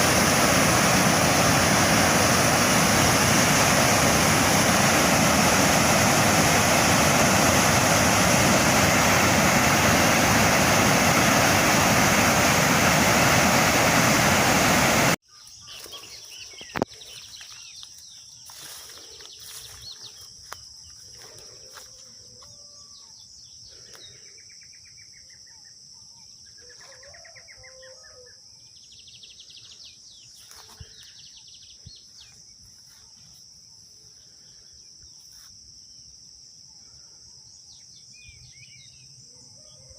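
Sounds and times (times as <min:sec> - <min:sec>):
waterfall roaring: 0:00.0 - 0:15.2
high insect drone: 0:00.0 - 0:26.7.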